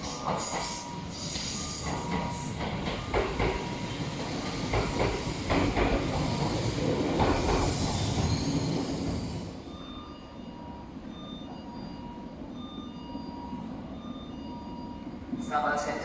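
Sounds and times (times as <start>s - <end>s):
train wheels clicking on rail joints: 0.0s - 9.4s
train running noise: 0.0s - 16.0s.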